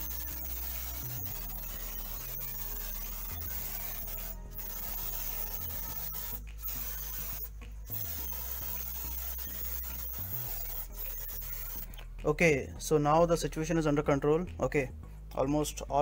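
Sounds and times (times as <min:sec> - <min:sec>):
aerosol spray hissing: 0:00.0 - 0:11.9.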